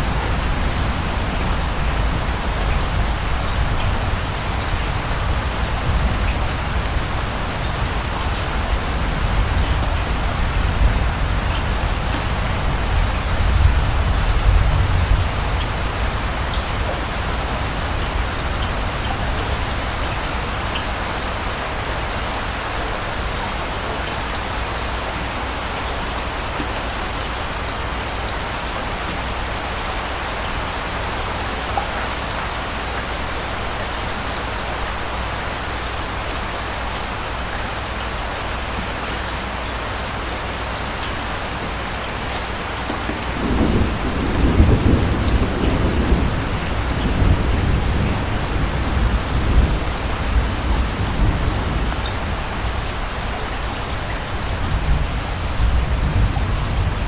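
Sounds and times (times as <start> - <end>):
steady rain falling: 0.0 - 57.0
distant thunder rumble: 42.7 - 53.2.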